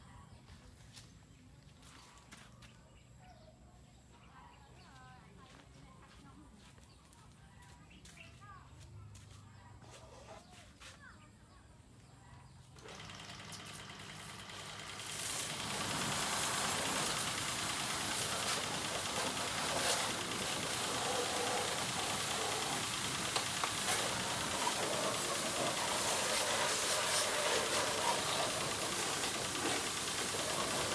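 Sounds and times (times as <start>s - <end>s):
water spraying hiss: 14.9s - 30.9s.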